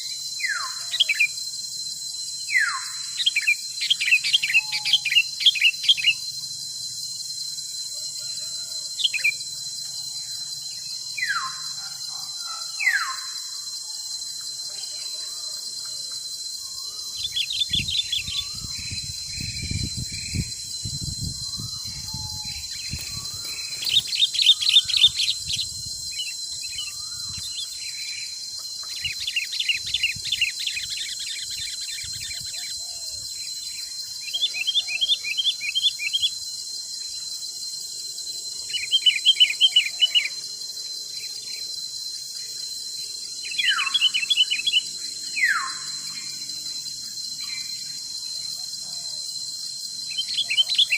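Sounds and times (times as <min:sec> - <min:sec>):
birds singing rapid trills: 0:00.0 - 0:37.4, 0:38.3 - 0:50.9
high insect drone: 0:00.0 - 0:50.9
low rumble of wind: 0:17.7 - 0:23.7.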